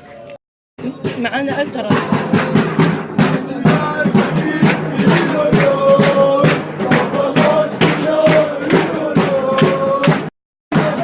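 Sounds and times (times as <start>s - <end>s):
steady drumbeat: 0.8s - 11.0s
crowd chanting in unison: 2.3s - 11.0s.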